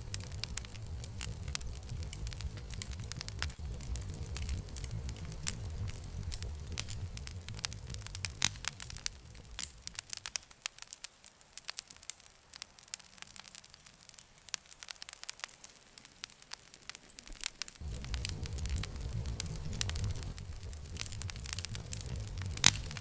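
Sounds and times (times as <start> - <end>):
low rumble: 0.0 - 10.2, 17.8 - 23.0
wood campfire crackling: 0.0 - 23.0.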